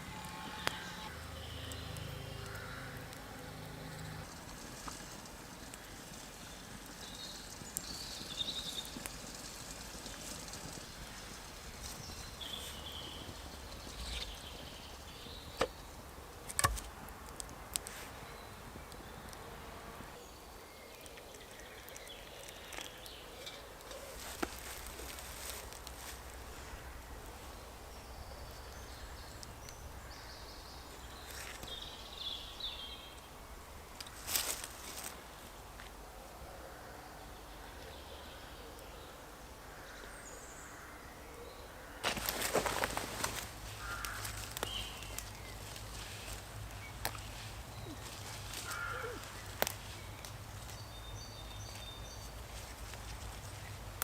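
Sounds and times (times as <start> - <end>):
woodland background: 0.0 - 54.0
warbling bird calls: 46.3 - 50.0.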